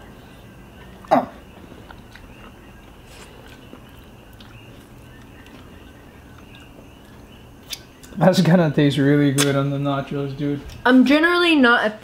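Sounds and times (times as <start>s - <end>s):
low steady background hum: 0.0s - 12.0s
person chewing: 0.7s - 8.2s.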